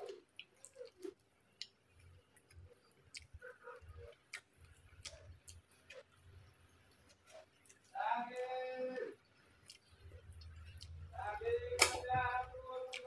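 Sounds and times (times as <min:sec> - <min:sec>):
wet mouth clicks: 0:00.0 - 0:06.2
chewing: 0:00.0 - 0:12.0, 0:12.7 - 0:13.0.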